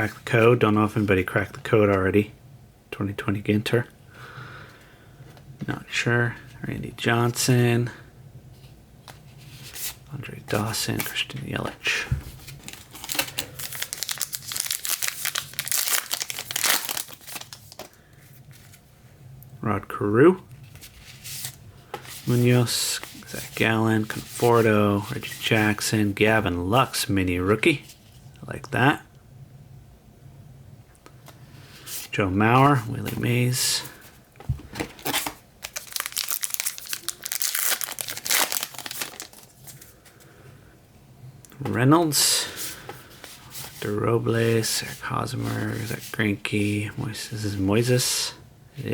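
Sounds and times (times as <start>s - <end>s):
wrapper tearing and crinkling: 12.5s - 18.0s, 35.0s - 39.9s.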